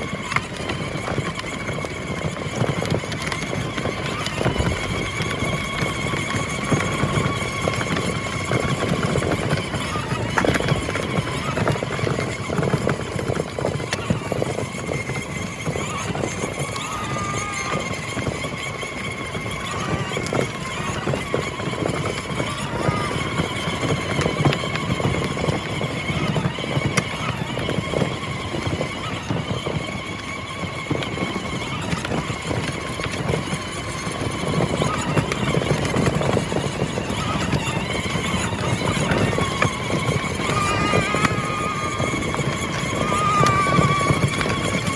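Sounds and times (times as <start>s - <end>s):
electric motor whine: 0.0s - 44.9s
plastic wheels rattling and crunching: 0.0s - 44.9s.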